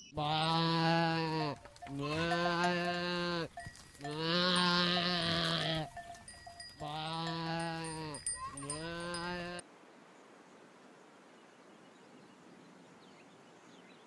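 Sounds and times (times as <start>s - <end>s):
goat bleating: 0.2s - 9.6s.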